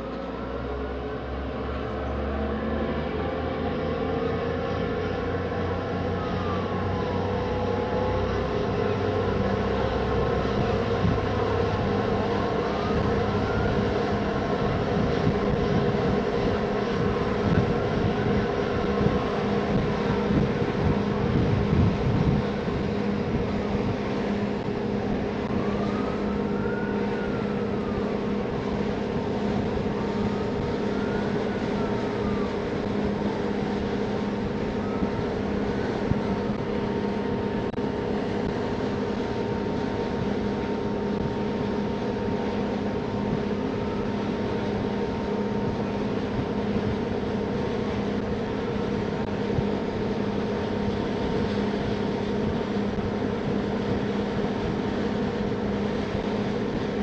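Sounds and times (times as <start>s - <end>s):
boat engines droning: 0.0s - 57.0s
rush of wind and water: 0.0s - 57.0s.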